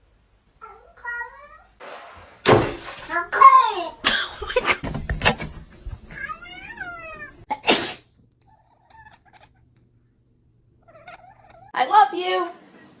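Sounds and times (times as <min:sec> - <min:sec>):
cat meowing: 0:06.0 - 0:07.5, 0:08.4 - 0:09.8, 0:10.7 - 0:11.8.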